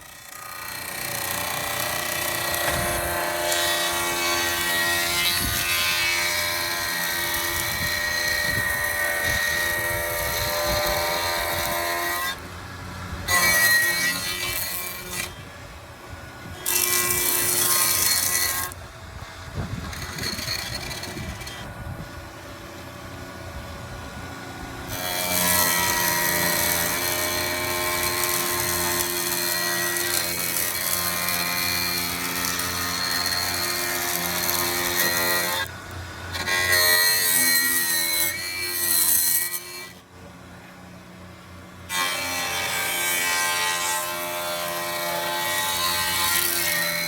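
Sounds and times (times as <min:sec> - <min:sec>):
steady motor hum: 0:00.0 - 0:13.4, 0:14.2 - 0:37.5
planer cutting wood: 0:00.0 - 0:15.4, 0:16.4 - 0:18.8, 0:19.5 - 0:21.8, 0:24.8 - 0:40.0, 0:41.9 - 0:47.0.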